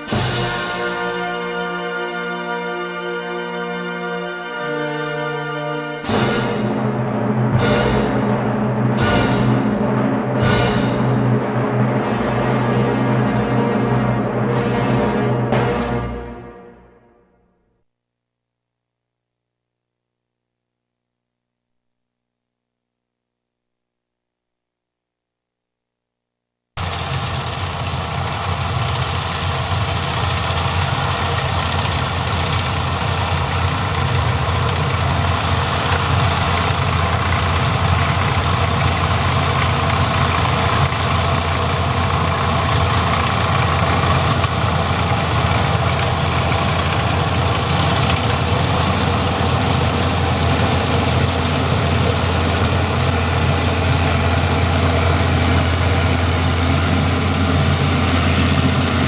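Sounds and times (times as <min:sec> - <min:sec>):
engine running with low hum: 0:26.8 - 0:59.0.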